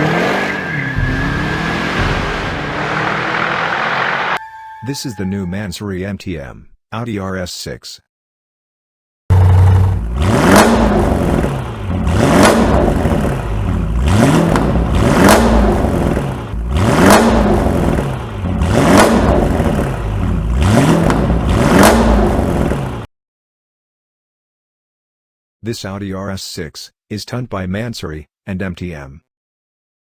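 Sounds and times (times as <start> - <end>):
car engine revving: 0.0 - 4.4, 9.3 - 23.1.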